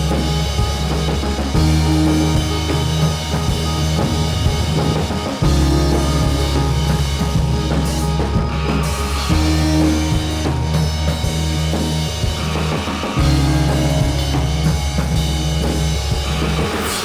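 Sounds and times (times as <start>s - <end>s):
deep bass line: 0.0s - 17.0s
drum beat: 0.0s - 17.0s.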